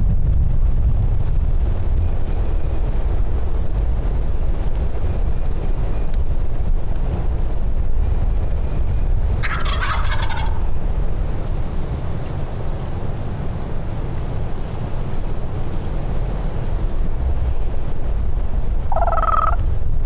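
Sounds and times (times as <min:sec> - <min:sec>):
wind rumble on microphone: 0:00.0 - 0:20.0
turkey gobbling: 0:09.4 - 0:10.6, 0:18.9 - 0:19.6.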